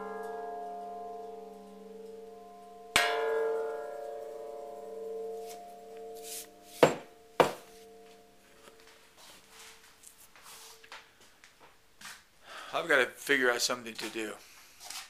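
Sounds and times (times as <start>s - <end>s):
struck metal bell ringing: 0.0s - 8.9s
sharp knocks: 6.8s - 7.8s.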